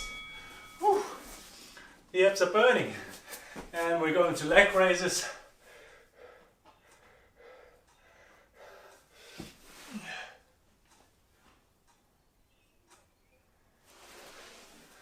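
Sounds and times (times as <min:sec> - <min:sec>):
man breathing hard: 0:03.1 - 0:03.7, 0:05.4 - 0:10.5.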